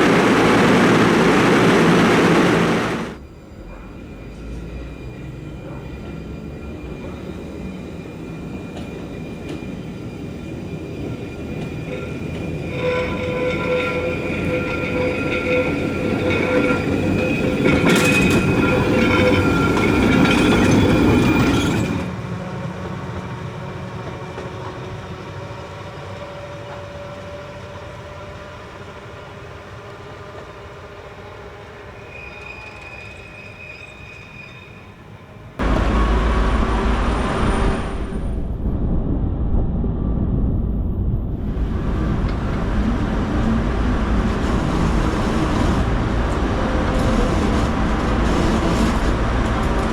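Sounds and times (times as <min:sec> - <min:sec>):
tram wheel squeal: 0:00.0 - 0:38.6, 0:41.8 - 0:49.9
tram running rumble: 0:00.0 - 0:49.9
loud low rumble: 0:35.6 - 0:48.2.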